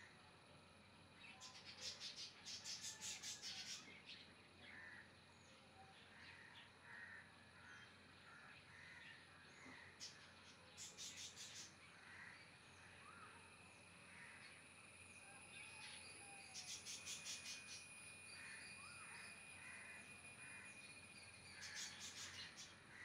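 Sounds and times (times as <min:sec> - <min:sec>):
faint bird calls: 0:01.2 - 0:23.0
high-pitched whine: 0:12.9 - 0:22.9.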